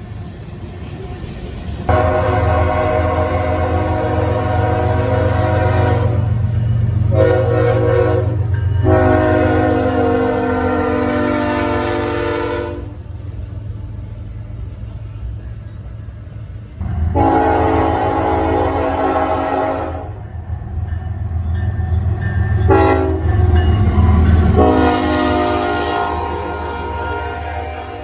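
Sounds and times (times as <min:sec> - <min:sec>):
train rumbling: 0:00.0 - 0:28.0
locomotive air horn blasts: 0:01.9 - 0:06.3, 0:07.1 - 0:13.0, 0:17.1 - 0:20.2, 0:22.7 - 0:23.6, 0:24.4 - 0:28.0.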